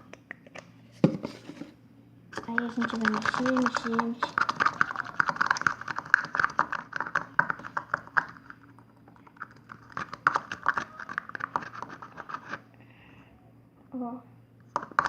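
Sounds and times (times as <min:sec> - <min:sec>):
stick clicking against pot: 0:02.4 - 0:08.6.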